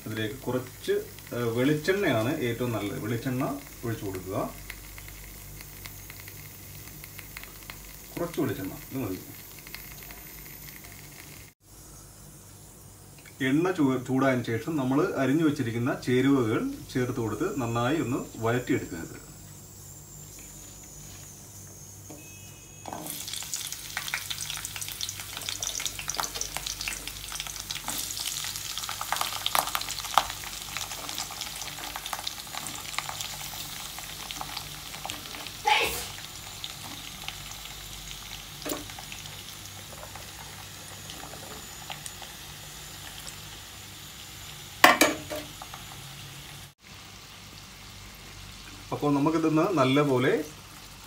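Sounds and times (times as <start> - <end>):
vegetables sizzling in hot oil: 0.0 - 51.0
steel spoon stirring: 22.9 - 23.6.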